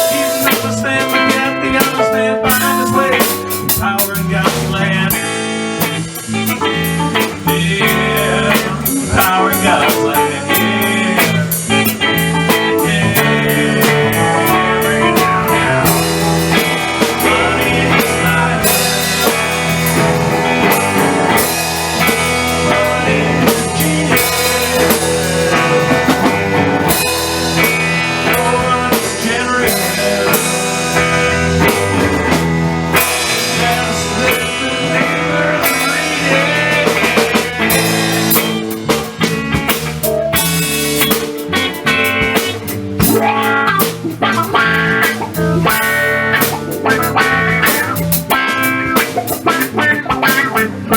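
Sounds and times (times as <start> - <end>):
blues guitar: 0.0 - 50.9
drum kit: 0.0 - 50.9.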